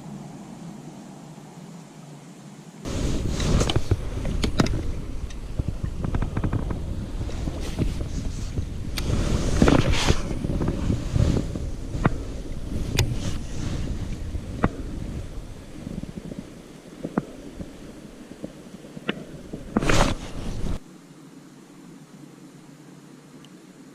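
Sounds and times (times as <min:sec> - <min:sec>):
wind buffeting microphone: 0:02.8 - 0:20.8.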